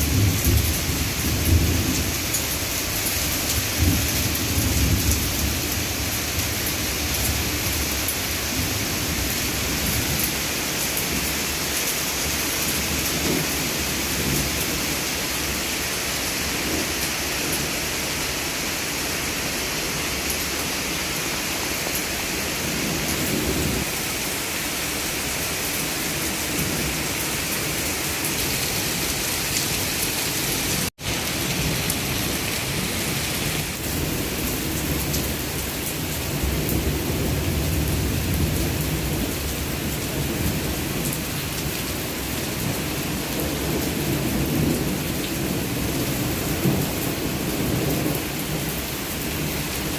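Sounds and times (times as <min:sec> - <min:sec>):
heavy rain pouring: 0:00.0 - 0:49.9.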